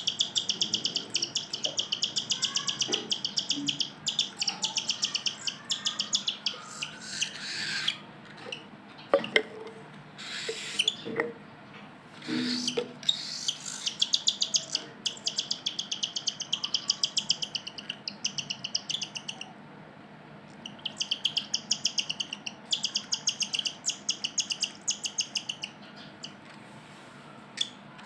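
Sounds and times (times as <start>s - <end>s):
cockatiel chirping: 0.0s - 8.0s, 10.2s - 11.0s, 12.2s - 19.5s, 20.6s - 26.4s.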